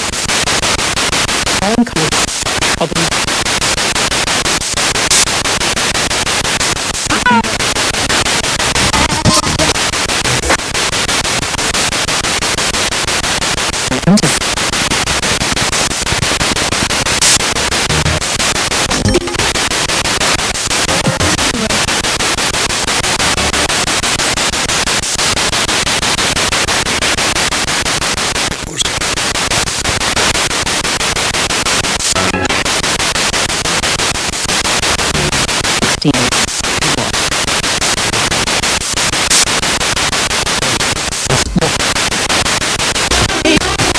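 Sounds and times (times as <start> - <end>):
radio static: 0.0 - 43.9
snatches of broadcast music: 0.0 - 43.9
snatches of radio voices: 1.5 - 5.8, 6.8 - 10.7, 13.8 - 22.1, 28.6 - 30.1, 31.8 - 32.9, 34.9 - 43.9.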